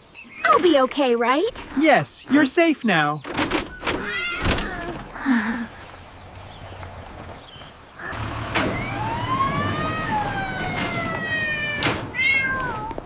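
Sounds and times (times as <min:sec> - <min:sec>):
low vehicle rumble: 0:04.0 - 0:13.0
emergency vehicle siren wailing: 0:08.0 - 0:12.7.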